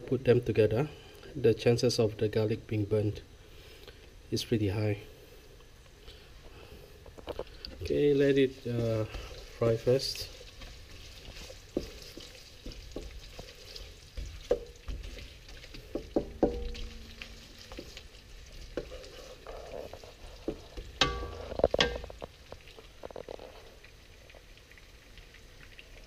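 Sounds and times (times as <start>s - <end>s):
onions sizzling in oil: 5.6s - 26.0s
spatula knocking on wok: 11.7s - 13.5s, 14.2s - 18.0s, 20.5s - 22.2s.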